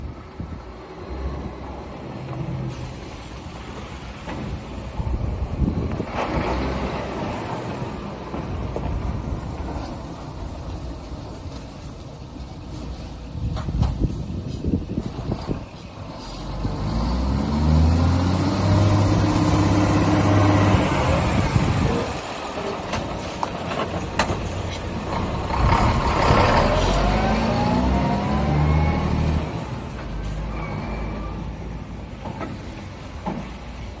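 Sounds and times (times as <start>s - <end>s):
truck diesel engine revving: 16.0s - 31.8s.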